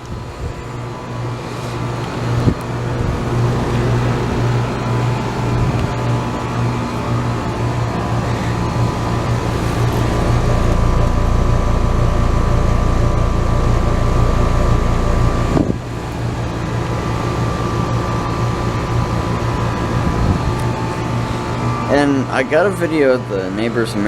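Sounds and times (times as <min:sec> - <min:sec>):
air conditioner hum: 0:00.0 - 0:24.0
deep rumble: 0:08.0 - 0:16.9.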